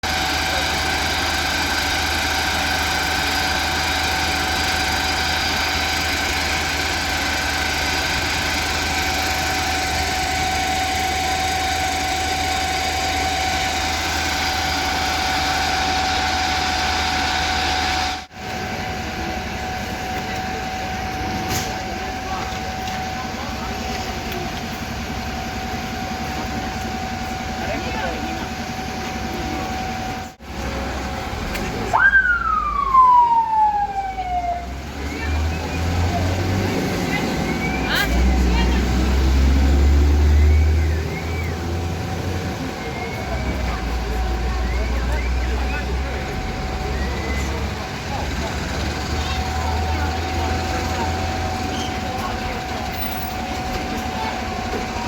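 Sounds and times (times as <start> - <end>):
diesel engine idling: 0.0 - 55.0
high whine: 31.7 - 35.3.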